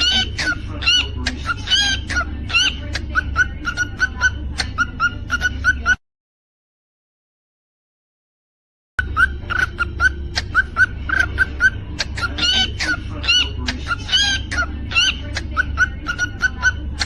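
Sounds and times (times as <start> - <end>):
cockatiel chirping: 0.0 - 6.0, 9.0 - 17.0
cockatiel whistling: 9.0 - 16.8
steady low hum: 9.0 - 17.0.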